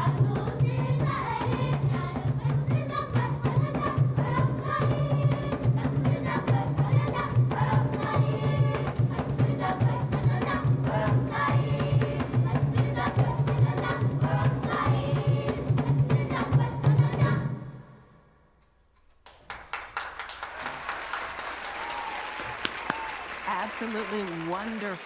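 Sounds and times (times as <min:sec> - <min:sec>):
children's choir singing: 0:00.0 - 0:17.9.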